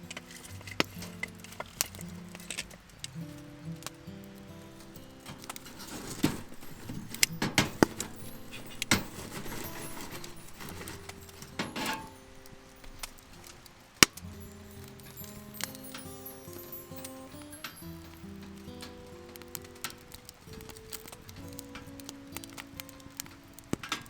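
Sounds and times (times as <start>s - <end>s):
quiet background music: 0.0s - 24.0s
small hard objects clinking: 0.0s - 24.0s.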